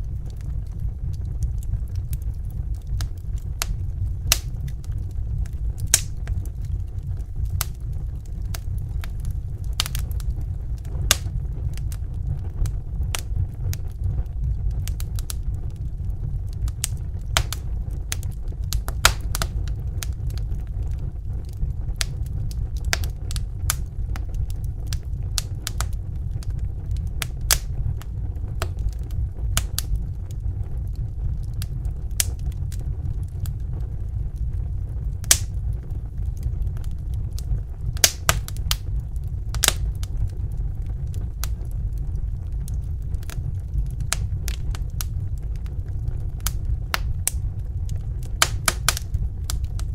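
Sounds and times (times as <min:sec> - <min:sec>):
wood fire crackling: 0:00.0 - 0:49.9.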